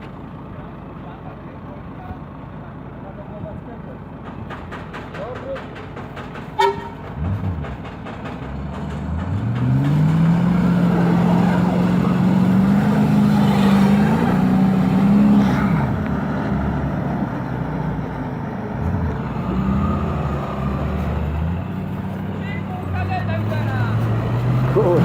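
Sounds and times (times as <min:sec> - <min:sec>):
heavy vehicle engine revving: 0:06.9 - 0:25.0.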